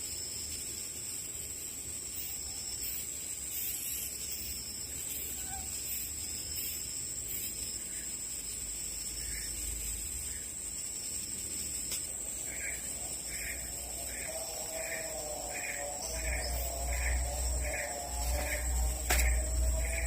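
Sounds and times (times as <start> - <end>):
forest insects droning: 0.0 - 20.0
lower wavering call: 12.8 - 20.0.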